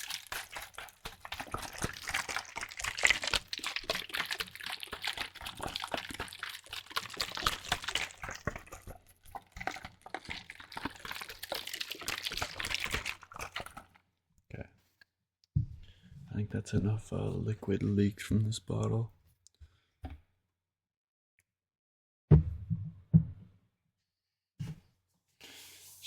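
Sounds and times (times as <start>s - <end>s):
liquid dripping from a bottle: 0.0s - 14.0s.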